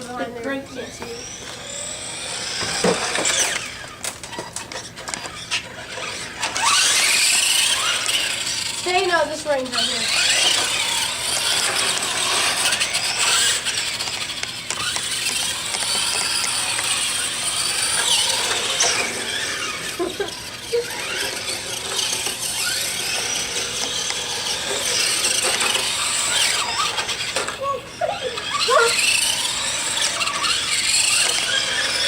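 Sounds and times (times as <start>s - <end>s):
rc car motors whining: 0.0s - 32.0s.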